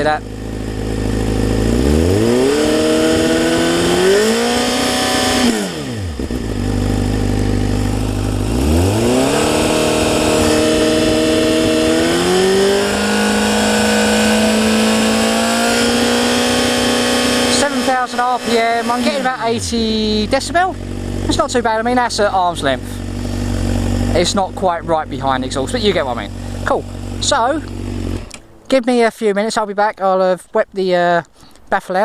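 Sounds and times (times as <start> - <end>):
motorcycle engine revving: 0.0 - 28.6.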